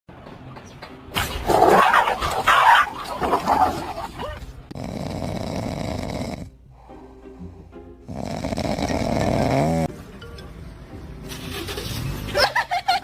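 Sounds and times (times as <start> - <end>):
dog barking and growling: 1.4 - 6.5, 8.1 - 9.9.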